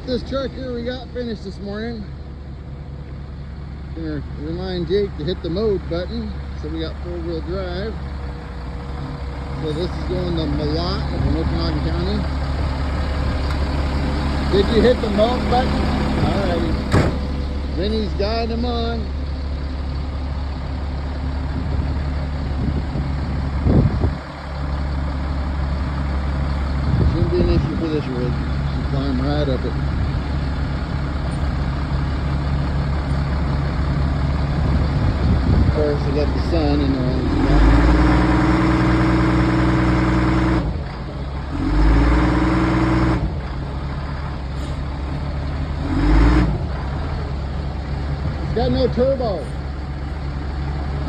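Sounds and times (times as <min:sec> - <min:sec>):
diesel truck engine running: 0:00.0 - 0:51.0.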